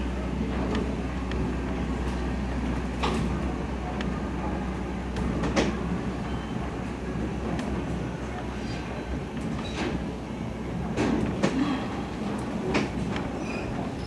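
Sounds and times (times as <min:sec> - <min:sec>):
train coach rumble and hum: 0:00.0 - 0:14.0.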